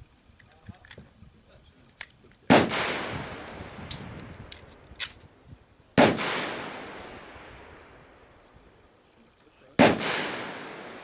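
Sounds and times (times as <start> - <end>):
pistol shots with echo: 2.5 - 4.1, 6.0 - 8.0, 9.8 - 11.0
sharp clicks: 3.4 - 5.3.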